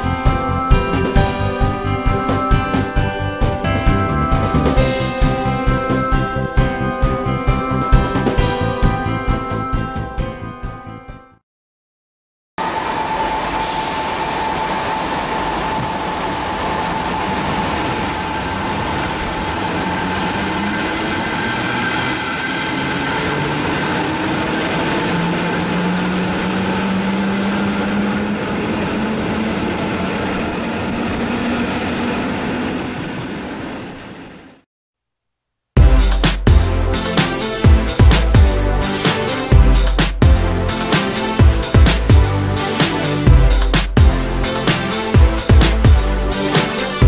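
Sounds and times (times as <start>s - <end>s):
steady high tone: 0.0s - 10.1s, 12.6s - 30.8s
train motor hum rising: 12.6s - 34.5s.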